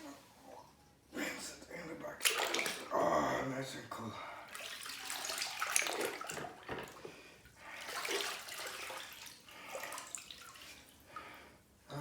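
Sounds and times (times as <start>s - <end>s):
running water splashing: 7.7s - 10.9s.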